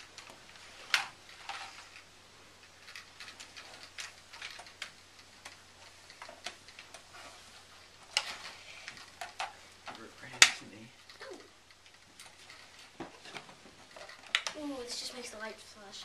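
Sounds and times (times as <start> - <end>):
plastic toy parts clicking: 2.6 - 7.0, 14.0 - 14.6.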